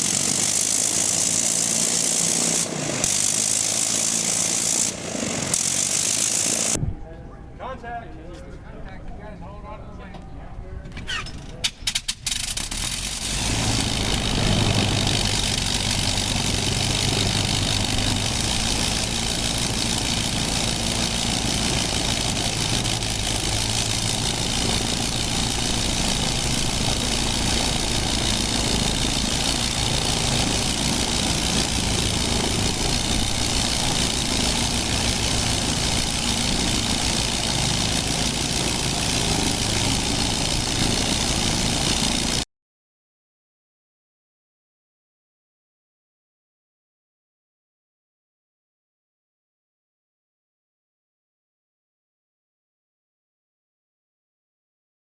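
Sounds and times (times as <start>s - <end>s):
radial aircraft engine idling: 12.6s - 42.4s.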